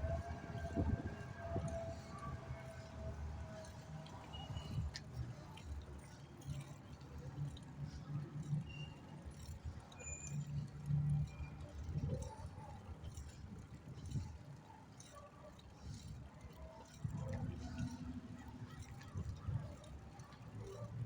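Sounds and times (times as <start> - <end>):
wind buffeting microphone: 0.0 - 3.1.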